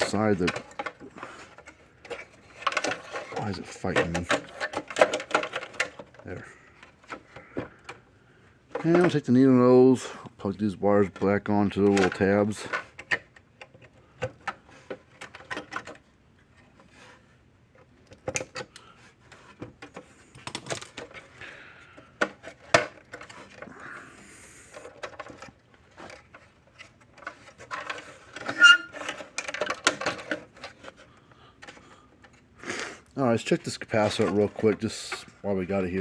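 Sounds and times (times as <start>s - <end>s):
tools rattling: 0.0s - 6.2s, 24.7s - 31.8s.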